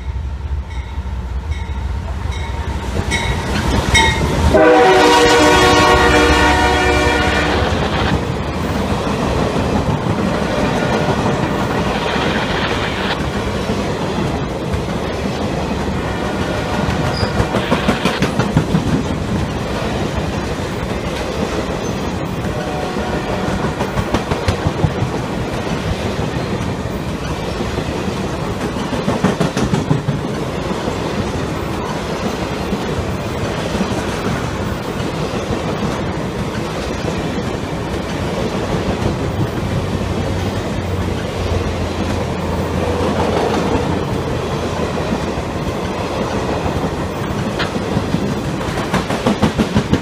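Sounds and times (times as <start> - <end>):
train wheels rumbling on rails: 0.0 - 50.0
locomotive horn chord: 4.5 - 7.7, 22.5 - 23.6
wheels clickety-clack over joints: 7.8 - 22.5, 23.5 - 50.0.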